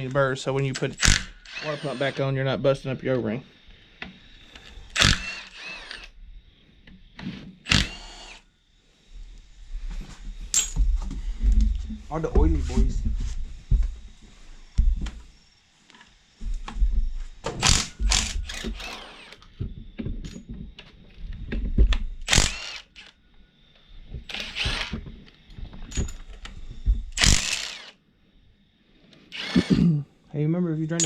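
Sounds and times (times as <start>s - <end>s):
power tool spinning bolts: 0.0s - 2.5s, 4.3s - 6.2s, 7.6s - 8.5s, 17.6s - 19.5s, 22.1s - 23.2s, 24.2s - 25.1s, 25.9s - 28.0s, 29.3s - 29.9s.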